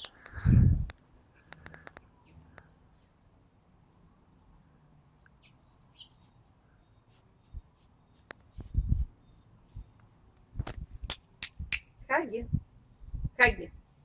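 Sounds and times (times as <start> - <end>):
faint bird chirps: 5.2 - 10.1.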